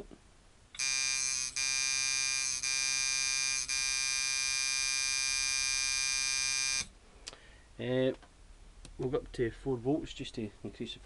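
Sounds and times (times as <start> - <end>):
tattoo machine buzzing: 0.8 - 6.9.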